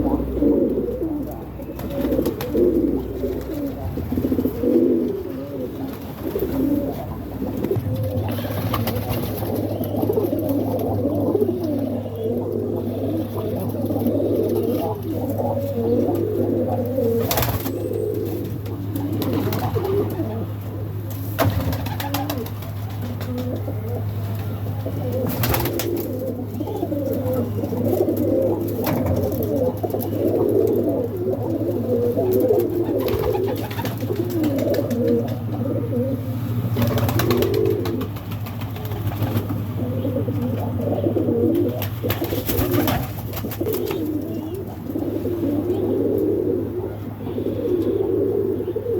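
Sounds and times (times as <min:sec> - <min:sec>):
doves cooing: 0:00.0 - 0:48.9
steady low hum: 0:00.0 - 0:48.9.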